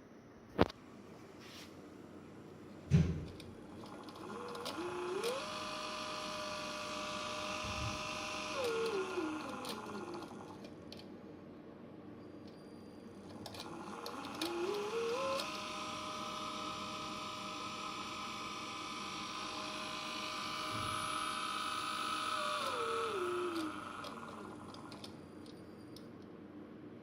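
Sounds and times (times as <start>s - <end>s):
servomotor whine: 3.0s - 10.8s, 12.6s - 26.0s.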